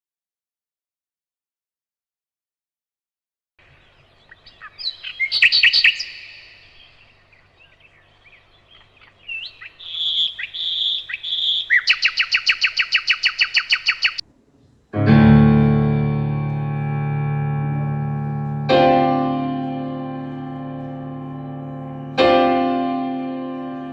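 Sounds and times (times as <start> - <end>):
birds chirping and whistling: 3.6 - 14.2
fast bird trill: 3.7 - 14.2
piano chord: 15.0 - 23.9.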